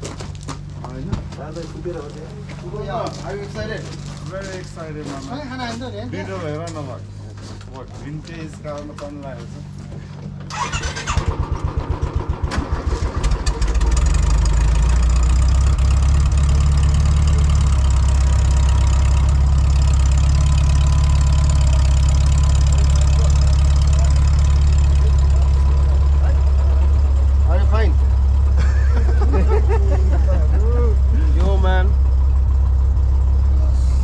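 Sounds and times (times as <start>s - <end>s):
engine idling: 9.2s - 34.0s
starter motor cranking engine: 10.4s - 28.5s.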